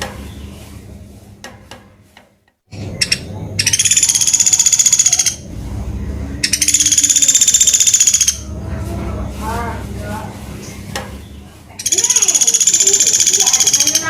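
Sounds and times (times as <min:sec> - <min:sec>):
woodpecker rattling trill: 0:02.8 - 0:05.5, 0:06.4 - 0:08.6, 0:11.8 - 0:14.0.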